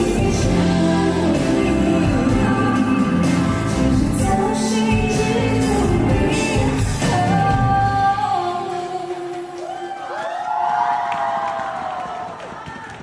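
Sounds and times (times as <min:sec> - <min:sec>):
live pop band: 0:00.0 - 0:10.0
woman singing: 0:00.0 - 0:10.1.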